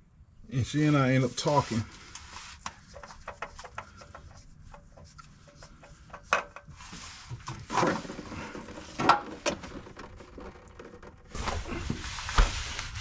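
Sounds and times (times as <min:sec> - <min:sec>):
light clicks and knocks: 0:02.6 - 0:06.8
short rustle: 0:11.3 - 0:13.0.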